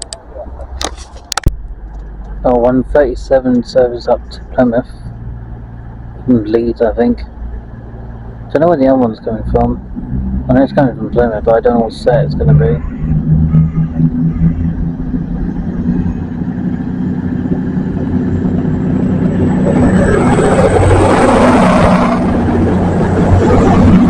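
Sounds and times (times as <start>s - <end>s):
high whine from rails: 0.0s - 24.0s
low engine hum: 0.0s - 24.0s
train rumble: 9.2s - 24.0s.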